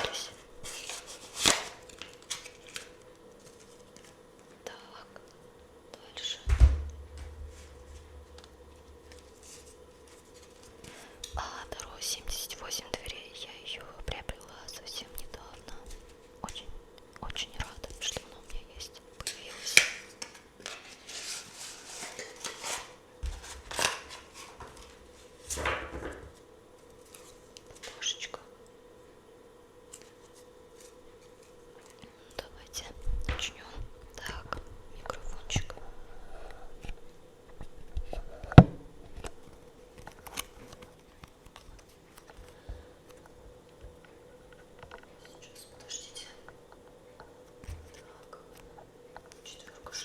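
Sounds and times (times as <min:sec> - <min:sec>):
cards rustling and sliding: 0:00.6 - 0:04.2, 0:19.3 - 0:25.0.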